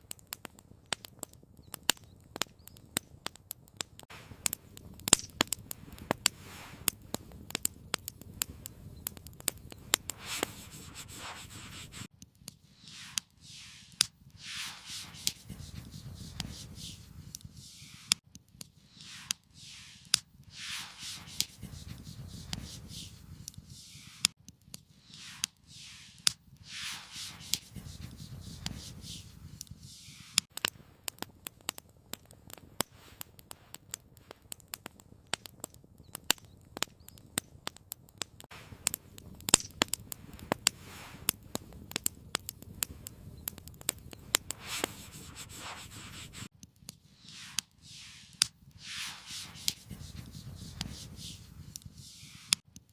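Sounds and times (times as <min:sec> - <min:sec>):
campfire crackling and popping: 0:00.0 - 0:52.9
rubbing and scraping handling noises: 0:09.8 - 0:24.3, 0:24.9 - 0:30.5, 0:44.1 - 0:52.6.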